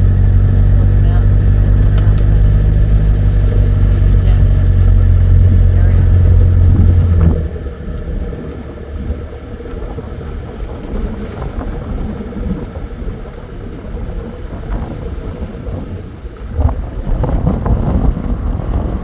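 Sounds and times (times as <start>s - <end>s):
low engine drone: 0.0s - 19.0s
tyres rumbling on dirt road: 0.0s - 19.0s
wind: 0.0s - 19.0s.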